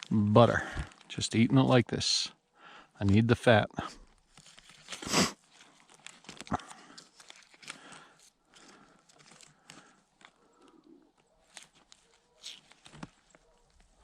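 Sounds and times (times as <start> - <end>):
butter wrapper crinkling: 4.0 - 14.0.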